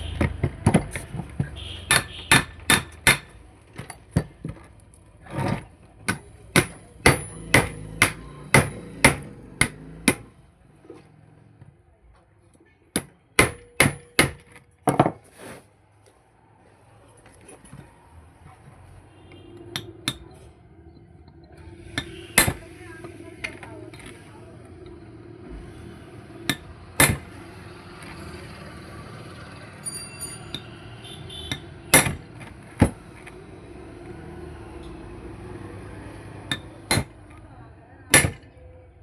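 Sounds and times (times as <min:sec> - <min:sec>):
hammer striking metal: 0:01.9 - 0:03.4, 0:06.1 - 0:10.3, 0:13.0 - 0:14.5, 0:21.8 - 0:22.7, 0:26.4 - 0:27.4, 0:31.5 - 0:32.2, 0:36.4 - 0:37.2, 0:38.1 - 0:38.5.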